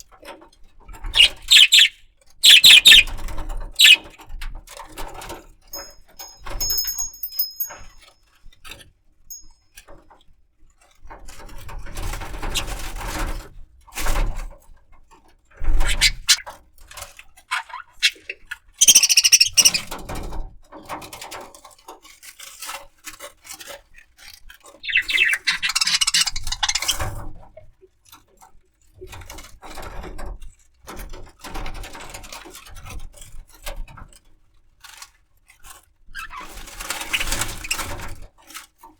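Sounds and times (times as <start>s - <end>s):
budgerigar chirping: 1.2s - 3.2s, 3.8s - 4.1s, 15.8s - 16.4s, 17.5s - 19.9s, 24.8s - 27.0s.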